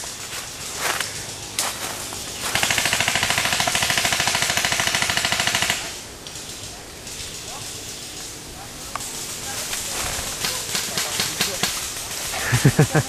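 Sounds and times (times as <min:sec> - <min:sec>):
airsoft gun firing: 0:02.5 - 0:06.0, 0:10.3 - 0:11.9.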